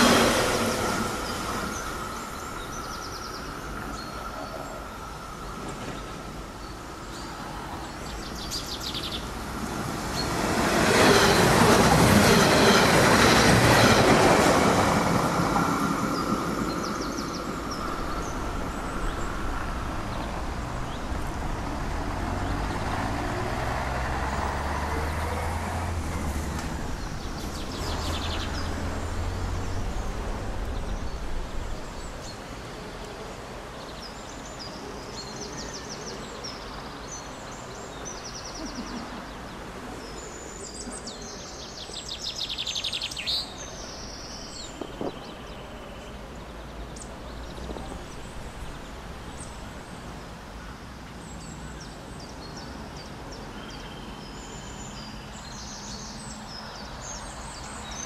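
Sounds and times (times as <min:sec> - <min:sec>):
small birds chirping: 0:01.2 - 0:25.5, 0:26.6 - 0:32.5
low vehicle rumble: 0:17.0 - 0:32.4.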